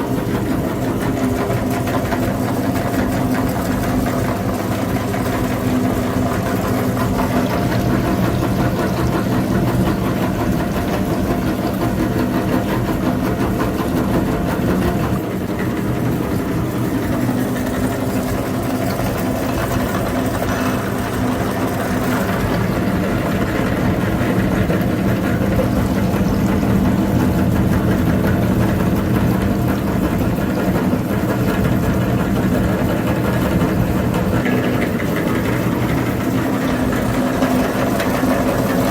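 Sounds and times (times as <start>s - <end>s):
tractor engine running: 6.0s - 32.3s.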